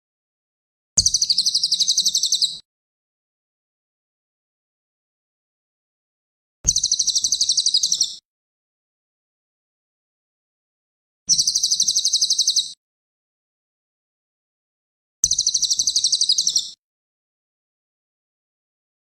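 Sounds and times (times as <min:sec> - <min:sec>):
bird trilling rapidly: 0:01.0 - 0:02.6, 0:06.7 - 0:08.2, 0:15.4 - 0:16.8.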